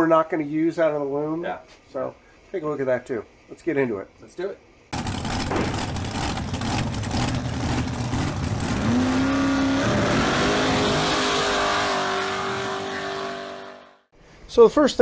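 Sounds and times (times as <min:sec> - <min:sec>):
car engine revving: 0:05.0 - 0:14.0.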